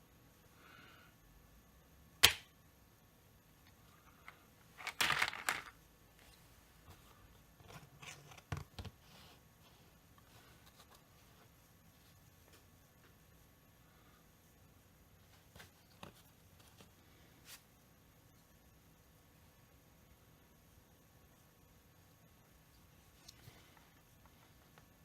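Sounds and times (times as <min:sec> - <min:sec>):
parts clattering and rustling: 0:03.7 - 0:09.3.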